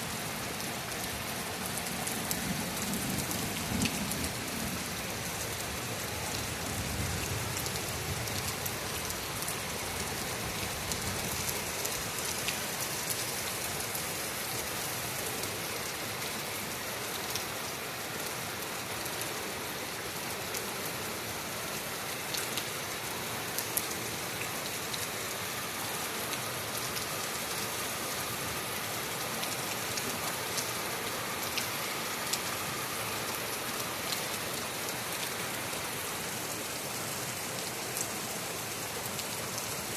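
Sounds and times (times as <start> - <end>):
heavy rain falling: 0.0 - 39.9
raindrops ticking nearby: 28.7 - 39.9.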